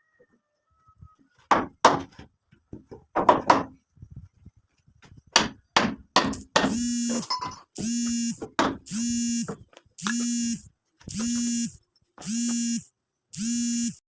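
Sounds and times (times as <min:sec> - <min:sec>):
electronic buzz: 0:06.7 - 0:14.0.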